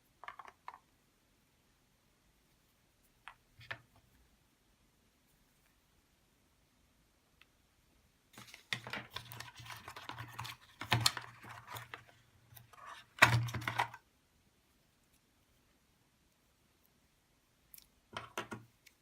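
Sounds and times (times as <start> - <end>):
packaging rustles: 8.4 - 14.0.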